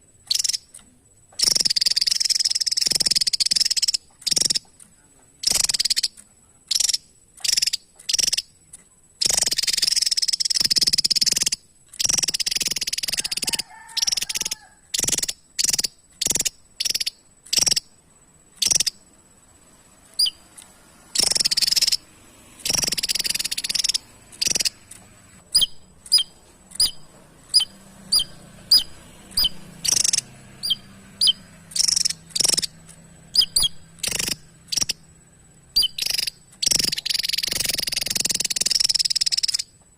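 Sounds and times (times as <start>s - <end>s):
bird singing sharp high notes: 21.1s - 24.9s, 25.5s - 35.1s, 35.7s - 39.7s.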